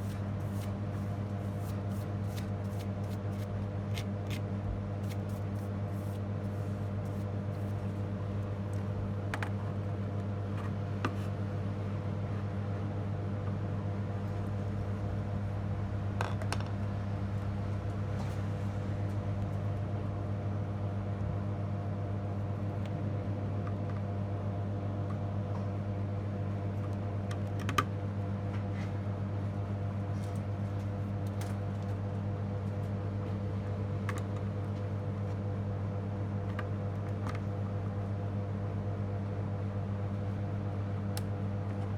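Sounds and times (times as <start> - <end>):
low electrical hum: 0.0 - 41.9.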